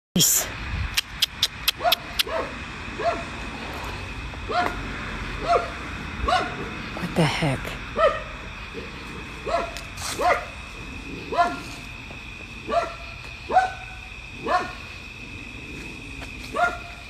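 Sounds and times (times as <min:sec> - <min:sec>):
dog barking: 0:01.7 - 0:03.3, 0:04.5 - 0:04.8, 0:05.4 - 0:06.7, 0:08.0 - 0:08.4, 0:09.4 - 0:10.6, 0:11.3 - 0:11.8, 0:12.6 - 0:14.8, 0:16.5 - 0:17.0.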